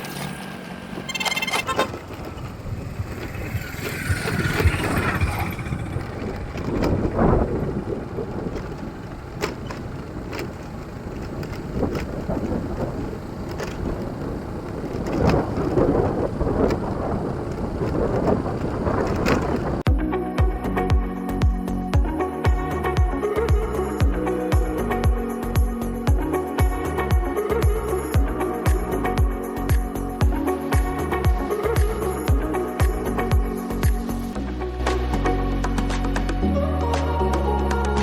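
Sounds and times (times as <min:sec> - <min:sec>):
vehicle road noise: 0:00.0 - 0:21.4, 0:22.1 - 0:38.0
wind buffeting microphone: 0:01.8 - 0:19.9.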